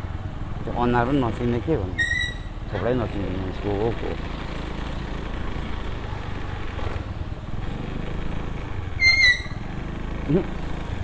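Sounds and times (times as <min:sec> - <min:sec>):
road traffic rumble: 0:00.0 - 0:11.0
vehicle horn beep: 0:09.0 - 0:09.6.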